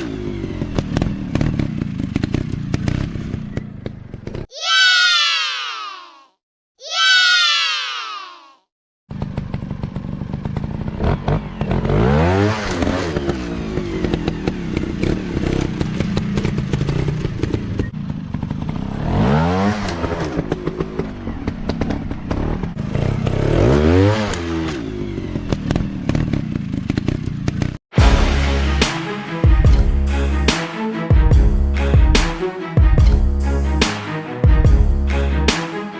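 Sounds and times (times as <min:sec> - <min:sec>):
motocross engine revving: 0:09.1 - 0:28.9.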